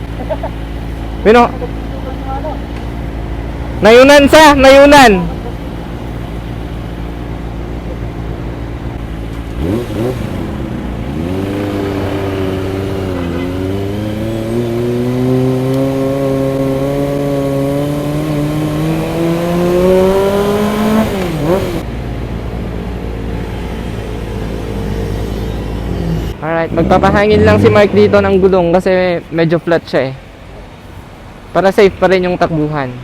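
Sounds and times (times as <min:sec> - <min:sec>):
motorcycle engine revving: 0:05.3 - 0:21.9, 0:24.3 - 0:28.8.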